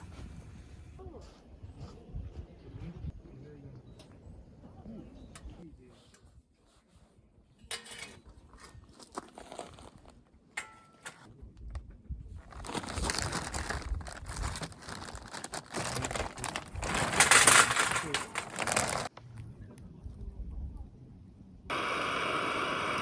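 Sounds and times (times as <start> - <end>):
material crinkling and rustling: 8.5 - 10.3, 12.3 - 19.1.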